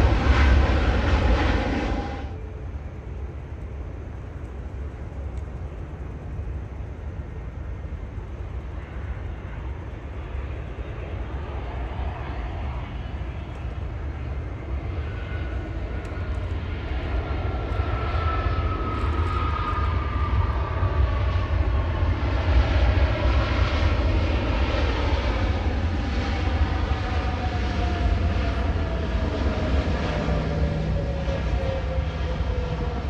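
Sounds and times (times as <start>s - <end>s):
jet airliner passing: 0.0s - 33.0s.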